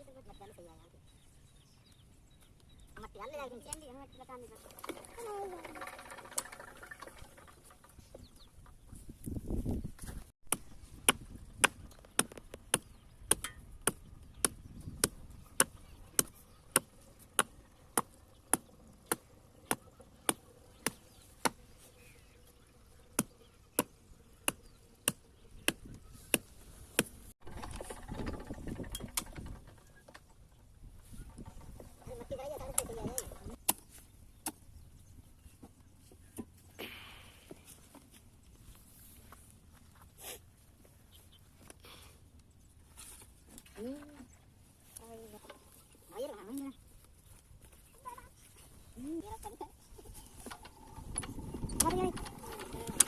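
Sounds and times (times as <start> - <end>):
low rumbling: 49.8 - 53.0.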